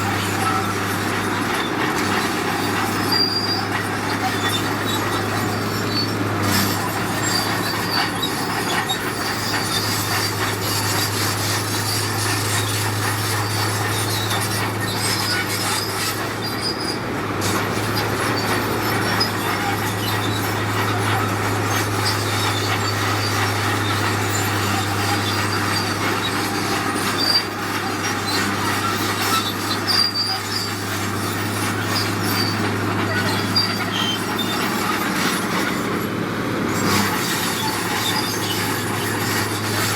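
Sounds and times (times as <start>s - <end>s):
diesel engine drone: 0.0s - 39.9s
high metallic squeals: 0.0s - 39.9s.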